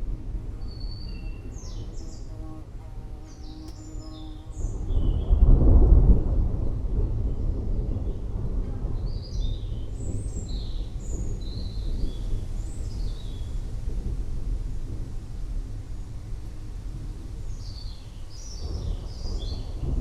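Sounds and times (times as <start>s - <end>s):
birds chirping: 0.0s - 5.5s, 17.4s - 20.0s
rolling thunder: 0.0s - 20.0s.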